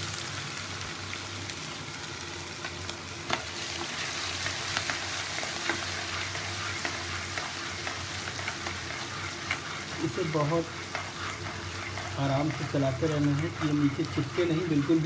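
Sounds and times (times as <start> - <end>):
food sizzling in hot oil: 0.0 - 15.0
spatula scraping a pan: 4.0 - 15.0.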